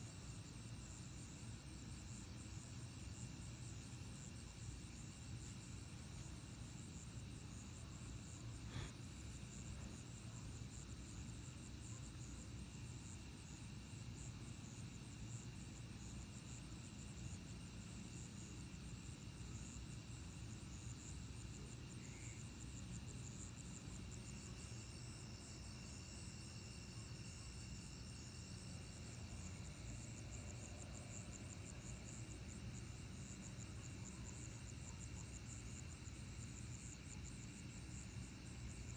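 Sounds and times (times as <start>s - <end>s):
crickets and insects trilling: 18.0s - 38.9s.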